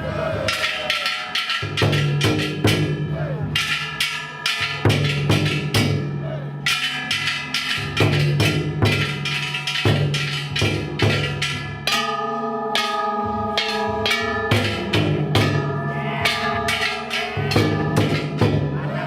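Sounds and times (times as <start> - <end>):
large taiko drum strikes: 0.1 - 19.0
bronze gongs ringing: 0.4 - 19.0.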